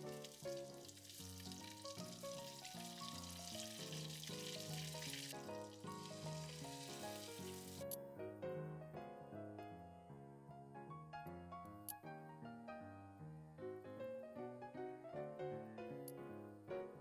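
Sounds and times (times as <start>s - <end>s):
meatballs sizzling in oil: 0.0s - 7.8s
background music: 0.0s - 17.0s.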